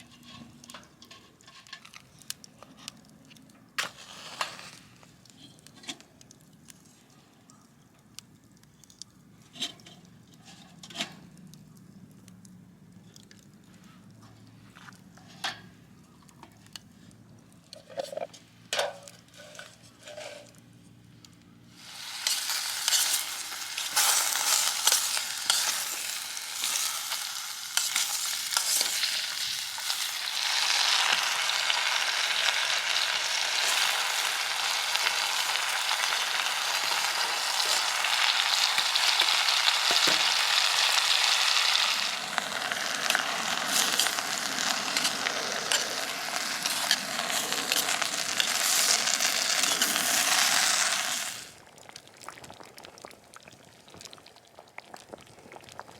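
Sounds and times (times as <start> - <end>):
food sizzling in hot oil: 21.7 - 51.6
utensil clicking and scraping: 22.2 - 30.2.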